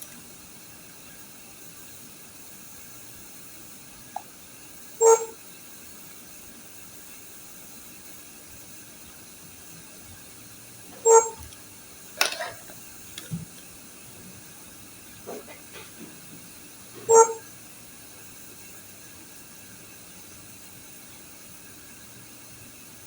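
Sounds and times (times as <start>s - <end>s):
steady hiss: 0.0s - 23.0s
electronic beep: 5.0s - 5.4s, 11.0s - 11.4s, 17.1s - 17.4s.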